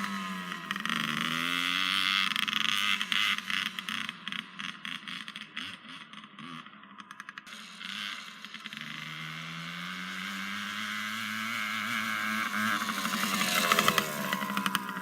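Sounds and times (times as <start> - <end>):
small engine revving up: 0.0 - 5.8, 7.5 - 15.0.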